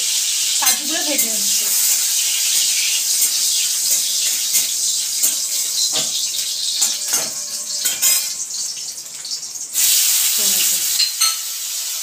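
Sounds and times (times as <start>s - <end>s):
nuts sizzling in hot oil: 0.0s - 12.0s
metal spatula scraping a pan: 0.7s - 9.4s.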